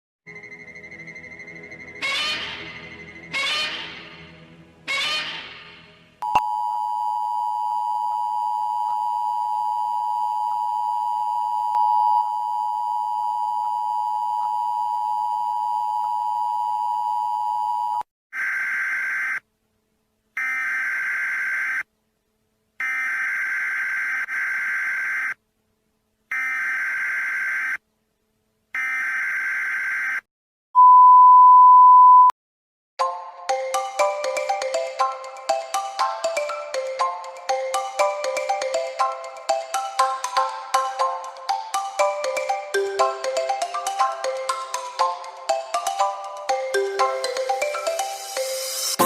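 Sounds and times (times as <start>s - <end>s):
loud steady beep: 0.3s - 2.2s
telephone dial tone: 6.2s - 18.1s
repeated telephone tones: 6.2s - 19.4s, 26.3s - 27.8s.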